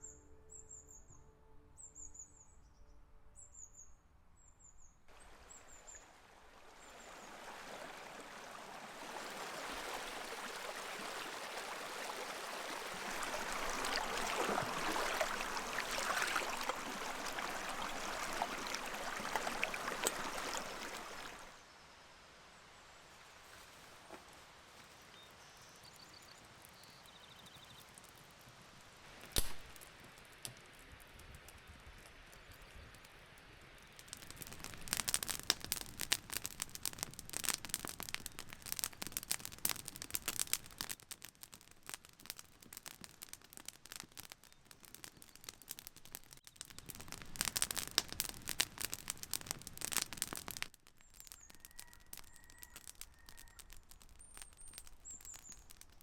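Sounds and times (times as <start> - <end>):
campfire crackling: 5.1 - 21.5, 23.5 - 56.0
faint bird chirps: 51.0 - 55.7.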